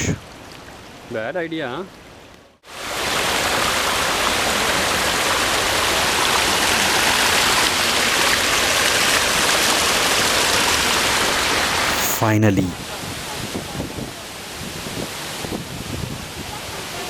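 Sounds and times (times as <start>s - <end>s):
rushing water: 2.8s - 11.8s.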